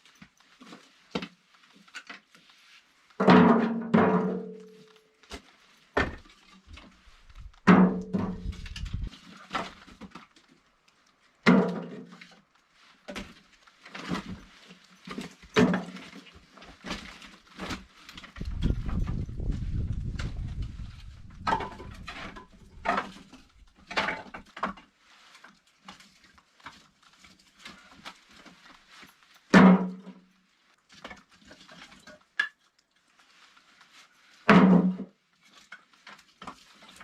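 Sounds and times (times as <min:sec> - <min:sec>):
knocks and clunks with ring: 0:07.4 - 0:09.1, 0:18.4 - 0:23.5.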